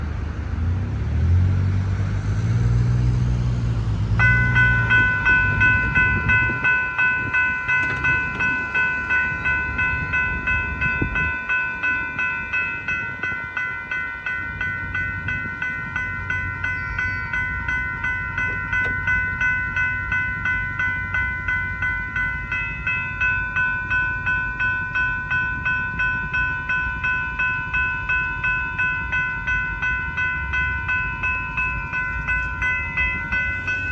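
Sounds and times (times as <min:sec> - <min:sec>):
deep engine rumble: 0:00.0 - 0:11.5
railroad crossing warning bell: 0:00.0 - 0:33.9.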